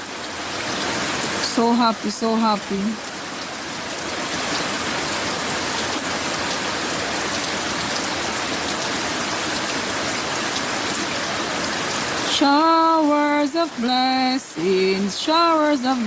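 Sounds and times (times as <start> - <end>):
steady rain falling: 0.0 - 16.0
person singing long notes: 12.3 - 16.0.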